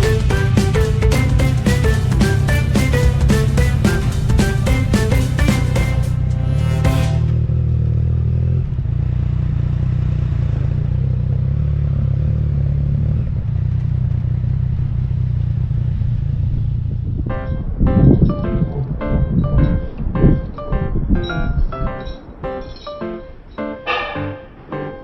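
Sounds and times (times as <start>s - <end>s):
music: 0.0s - 7.4s, 17.3s - 25.0s.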